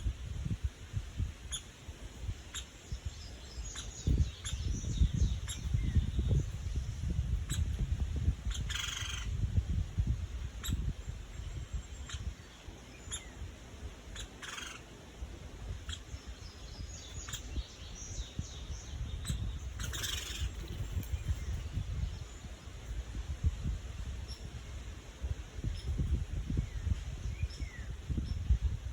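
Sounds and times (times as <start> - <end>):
faint bird chirps: 1.4 - 9.4, 10.5 - 15.0, 15.7 - 23.2, 25.6 - 28.6
bird calls: 2.4 - 6.6, 8.4 - 9.4, 10.6 - 13.5, 14.1 - 15.0, 15.7 - 22.7.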